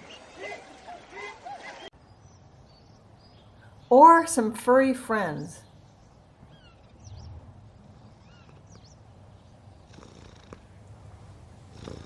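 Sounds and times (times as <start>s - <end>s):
cat purring: 9.8s - 10.6s, 11.7s - 12.0s.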